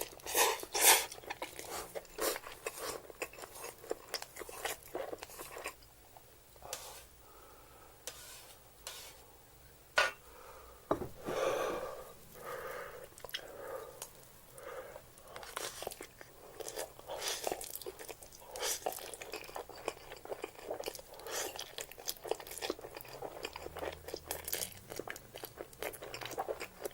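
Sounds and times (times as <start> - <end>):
noodles being chewed: 0.0 - 6.8, 15.2 - 26.9.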